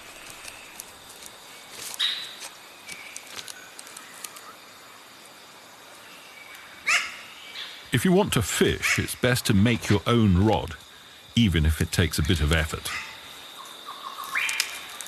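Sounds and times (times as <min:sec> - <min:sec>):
steady outdoor hiss: 0:00.0 - 0:15.0
small clicks: 0:00.2 - 0:04.5, 0:14.4 - 0:15.0
bird calls: 0:12.6 - 0:15.0.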